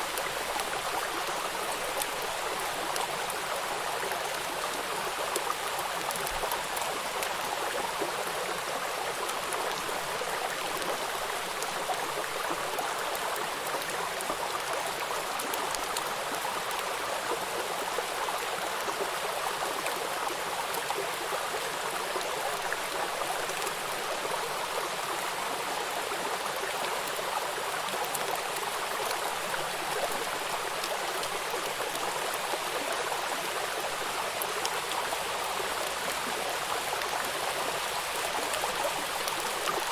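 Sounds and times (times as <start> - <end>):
raindrops pattering on water: 8.0 - 21.3, 22.2 - 39.9.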